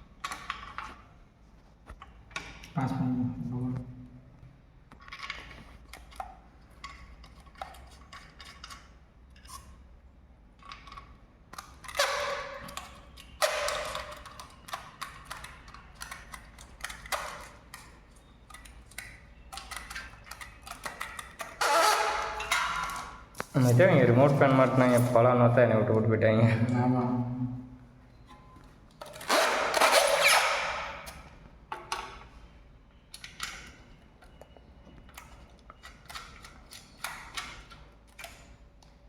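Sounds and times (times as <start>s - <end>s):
small hard parts clicking: 10.6s - 23.5s.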